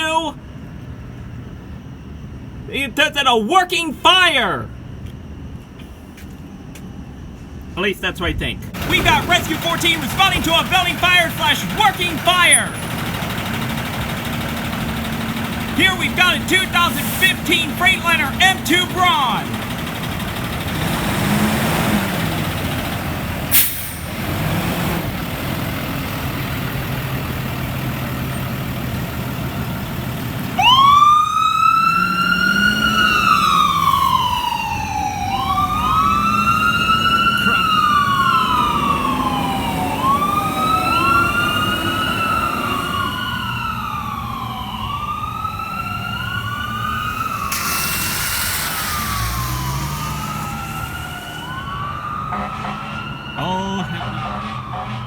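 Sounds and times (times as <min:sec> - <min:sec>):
diesel truck engine running: 0:08.7 - 0:55.0
electronic siren wailing: 0:30.5 - 0:48.0, 0:48.7 - 0:55.0
sharp engine burst: 0:47.2 - 0:51.7.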